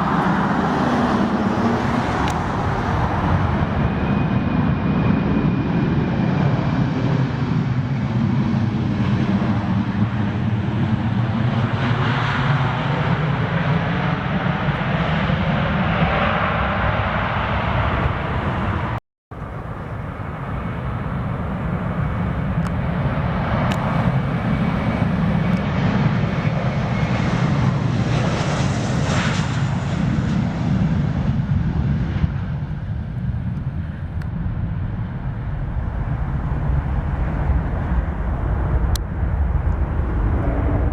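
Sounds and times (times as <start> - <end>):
jet engines roaring: 0.0 - 40.9
high whine: 34.8 - 40.9.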